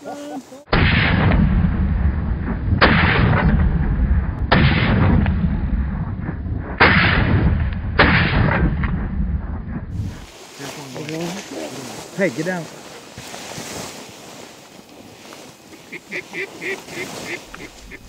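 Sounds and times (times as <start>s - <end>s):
shotgun blasts: 0.7s - 5.8s, 6.7s - 9.0s
heavy low rumble: 1.0s - 10.3s.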